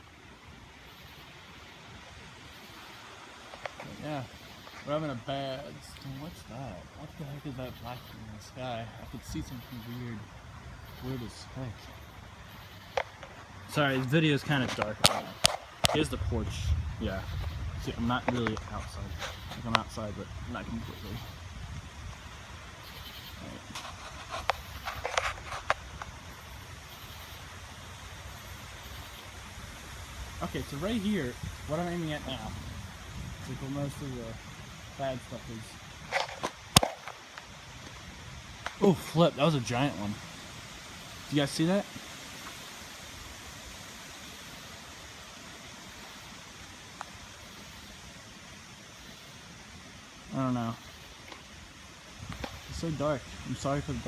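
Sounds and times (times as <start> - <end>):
rainstorm: 0.0 - 54.0
low rumble: 16.0 - 22.8.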